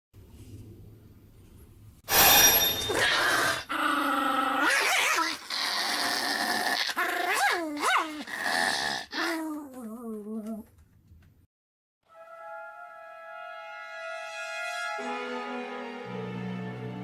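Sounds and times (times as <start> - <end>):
dog growling: 3.0 - 10.7.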